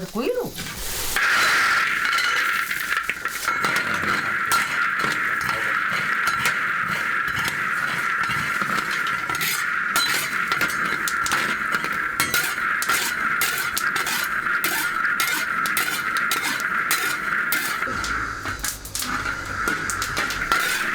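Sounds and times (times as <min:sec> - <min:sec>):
dishes and utensils clinking: 0:00.6 - 0:20.9
high-pitched drone: 0:17.9 - 0:20.9.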